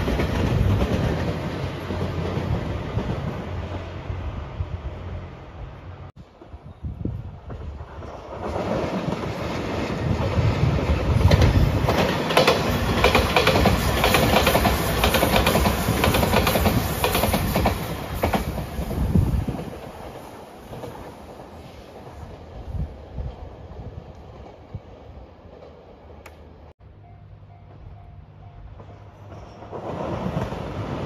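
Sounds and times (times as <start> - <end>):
electric train passing: 0.0 - 31.0
wheels clacking over rail joints: 7.5 - 21.4.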